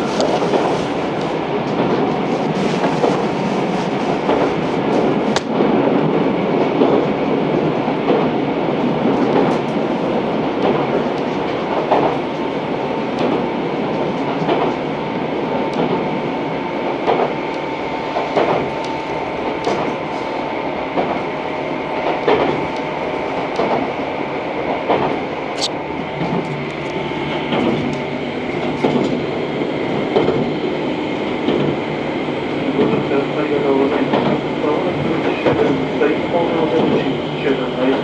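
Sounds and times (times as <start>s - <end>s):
train running rumble: 0.0s - 38.0s
train wheels clacking over joints: 10.6s - 12.2s, 18.2s - 19.0s.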